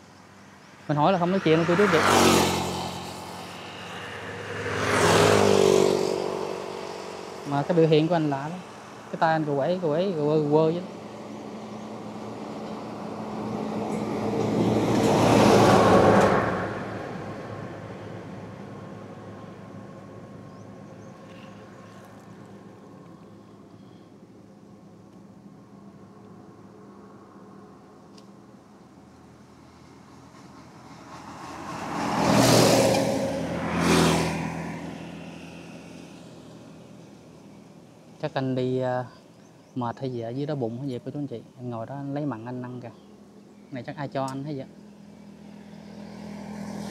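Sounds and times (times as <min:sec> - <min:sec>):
vehicle passing by: 0:00.7 - 0:24.0, 0:29.2 - 0:38.8, 0:43.8 - 0:46.9.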